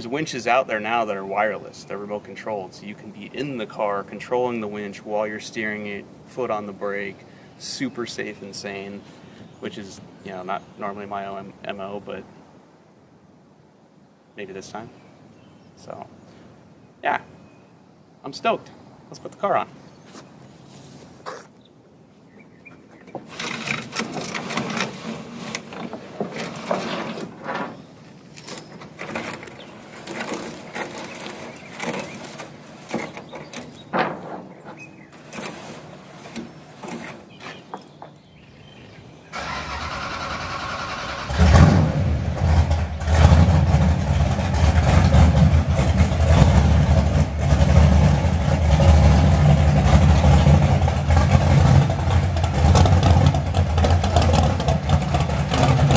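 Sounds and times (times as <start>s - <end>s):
knocks and clatter: 28.4s - 38.2s, 42.3s - 55.9s
engine starting and running: 39.3s - 55.9s.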